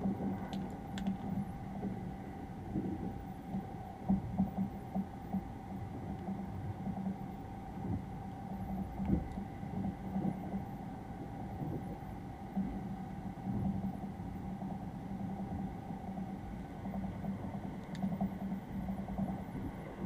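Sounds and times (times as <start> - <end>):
train interior rumble: 16.0 - 20.0.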